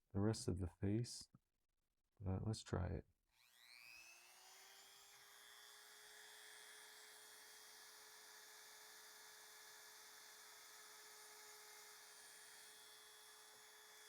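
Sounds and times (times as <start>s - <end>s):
rotary tool whine: 3.4s - 14.0s.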